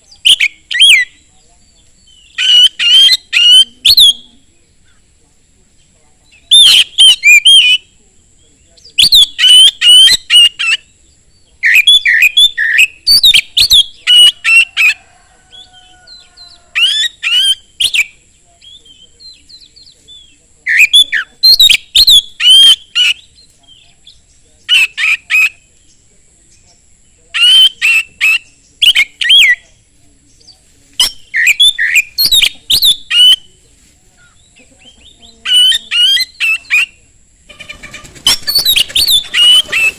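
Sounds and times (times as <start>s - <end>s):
bird singing whistled phrases: 6.4s - 7.9s, 9.0s - 10.8s, 11.6s - 14.6s, 31.0s - 33.5s.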